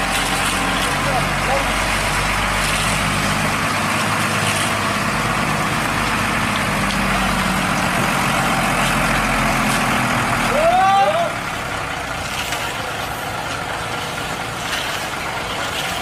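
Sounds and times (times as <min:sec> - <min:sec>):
truck diesel engine running: 0:00.0 - 0:16.0.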